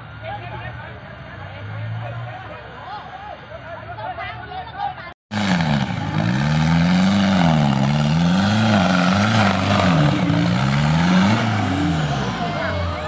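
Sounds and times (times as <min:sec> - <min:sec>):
vehicle engine revving: 0:05.3 - 0:13.0.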